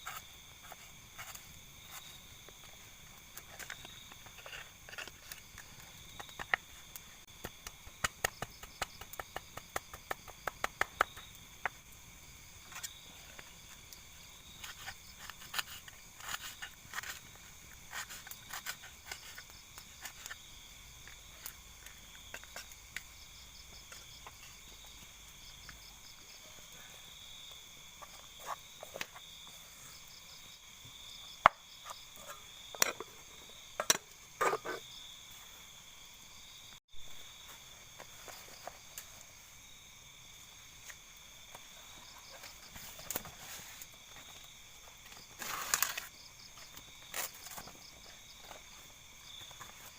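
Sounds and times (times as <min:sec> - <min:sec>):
insects and frogs trilling: 0:00.0 - 0:49.9.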